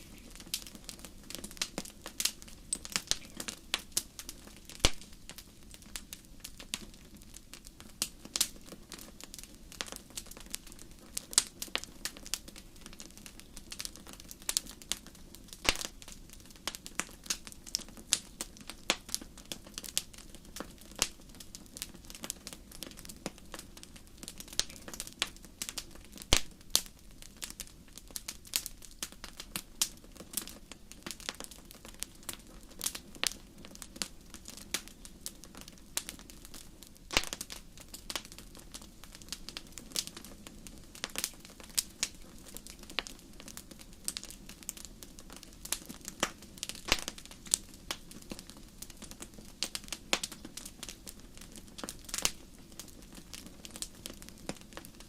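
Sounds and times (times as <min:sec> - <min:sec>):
low steady hiss: 0:00.0 - 0:55.0
wood fire crackling and popping: 0:00.0 - 0:55.0.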